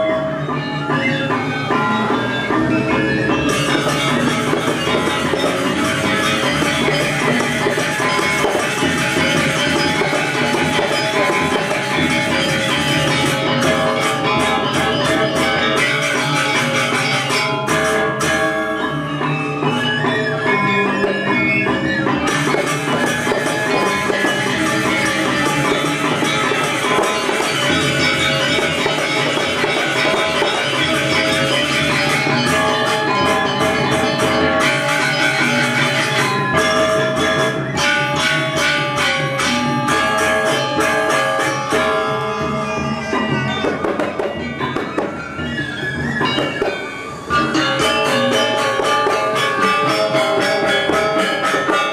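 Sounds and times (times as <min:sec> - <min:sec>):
gamelan metallophones ringing: 0:00.0 - 0:51.9.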